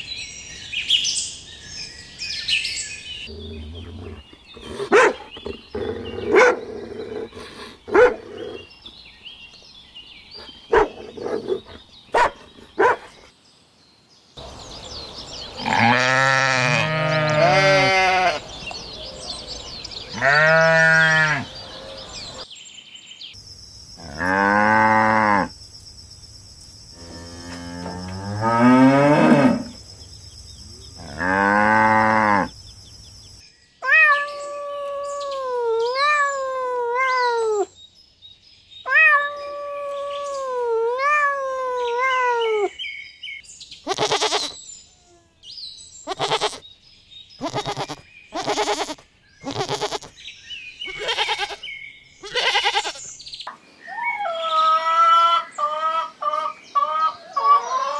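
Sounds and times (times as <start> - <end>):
cow mooing: 15.6 - 18.4, 20.1 - 22.3, 27.0 - 29.7, 31.0 - 32.5
sheep bleating: 15.6 - 18.5, 20.1 - 21.5, 43.9 - 44.6, 46.1 - 46.6, 47.4 - 50.1, 50.9 - 51.6, 52.2 - 53.0
cat meowing: 33.8 - 37.7, 38.9 - 42.7, 47.4 - 50.1, 50.9 - 51.6.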